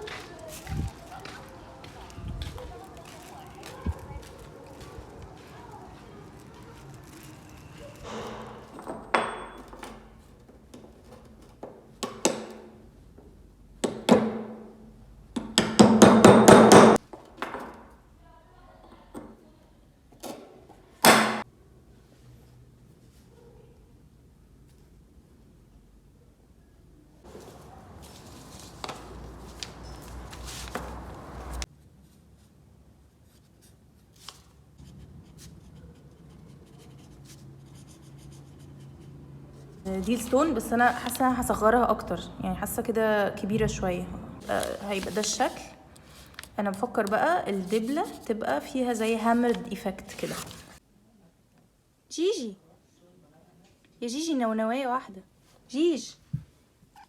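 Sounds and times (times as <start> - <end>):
hammer tapping on metal: 15.4 - 17.0
faint scratching of handwork: 27.3 - 41.2, 44.4 - 50.8.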